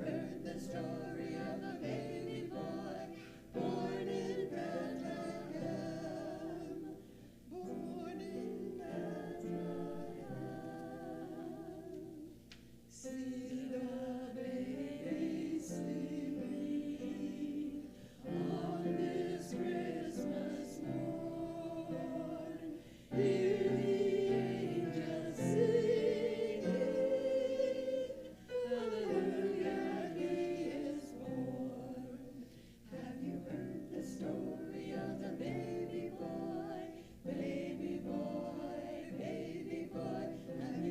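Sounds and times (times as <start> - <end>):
choir singing: 0.0 - 40.9.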